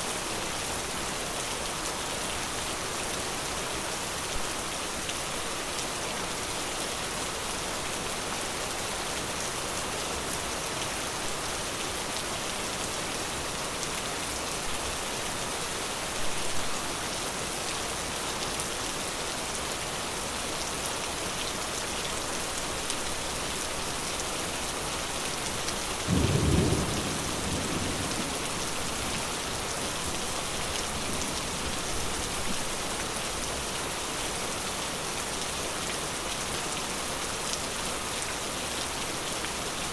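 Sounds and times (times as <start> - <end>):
steady rain falling: 0.0 - 39.9
low roll of thunder: 26.1 - 29.3.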